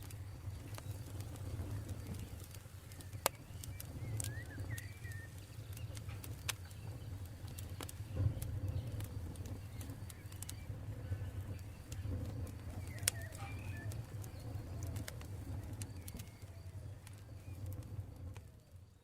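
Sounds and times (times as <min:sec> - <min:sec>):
campfire crackling: 0:00.0 - 0:19.0
faint chirps: 0:00.0 - 0:19.0.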